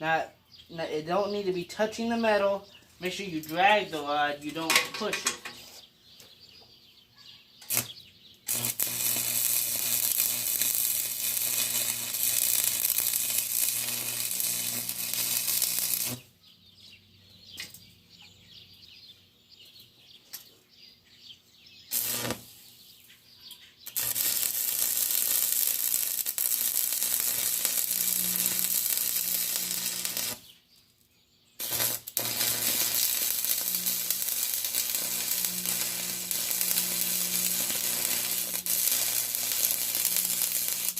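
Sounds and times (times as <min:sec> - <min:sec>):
arc welder crackling sizzle: 0:07.6 - 0:16.3, 0:21.9 - 0:22.7, 0:23.8 - 0:30.6, 0:31.6 - 0:40.9
arc strikes: 0:21.9 - 0:22.5, 0:23.9 - 0:30.4, 0:31.6 - 0:40.9.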